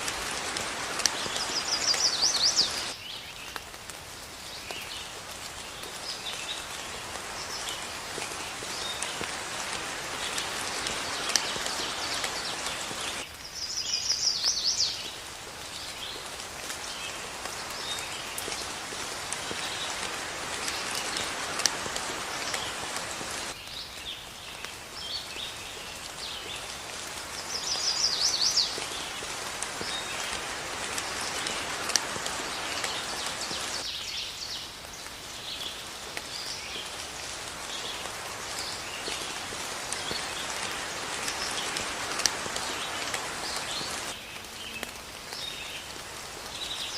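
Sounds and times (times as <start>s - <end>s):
rain falling: 0.0s - 46.9s
birds chirping: 0.2s - 3.4s, 5.8s - 24.2s.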